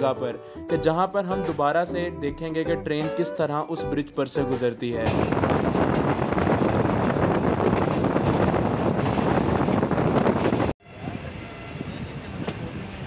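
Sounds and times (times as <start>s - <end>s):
wind buffeting microphone: 5.0s - 13.0s
train running at speed: 5.1s - 13.0s.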